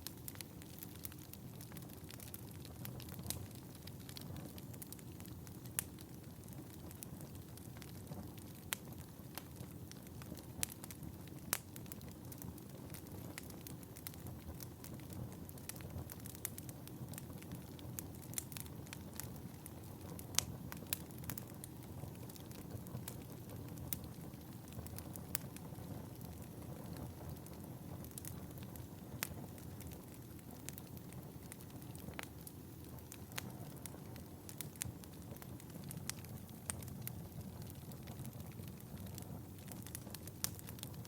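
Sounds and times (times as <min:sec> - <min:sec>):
fire crackling and popping: 0:00.0 - 0:41.0
flames rumbling: 0:00.0 - 0:41.0.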